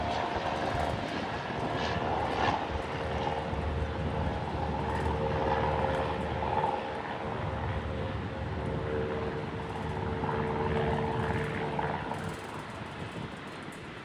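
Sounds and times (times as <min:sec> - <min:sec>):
jet engines roaring with whine: 0:00.0 - 0:14.0.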